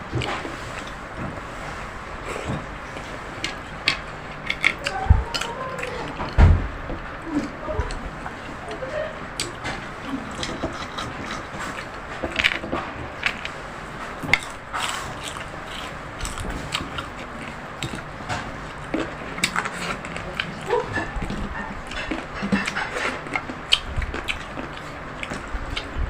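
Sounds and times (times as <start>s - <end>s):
chewing and crunching: 0.0s - 6.4s, 7.2s - 26.0s
utensils clicking against plate: 3.0s - 6.4s, 7.4s - 13.6s, 14.2s - 26.0s.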